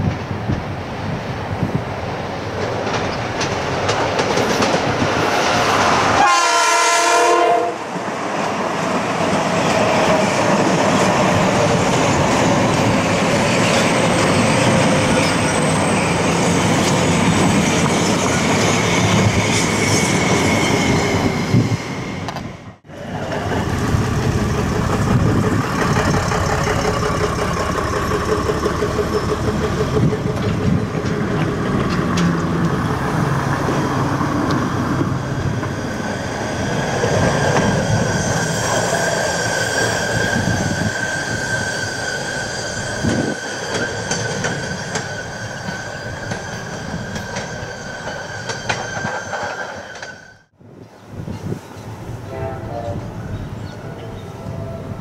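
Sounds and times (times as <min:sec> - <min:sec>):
train rumble and wheel clatter: 0:00.0 - 0:55.0
train horn blast: 0:06.2 - 0:07.9, 0:52.2 - 0:55.0.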